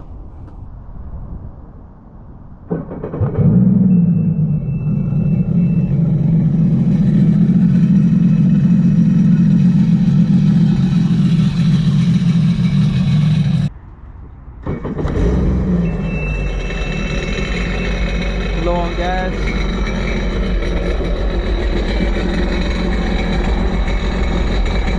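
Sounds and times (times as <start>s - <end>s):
watercraft engine running: 4.4s - 13.7s, 16.6s - 24.9s.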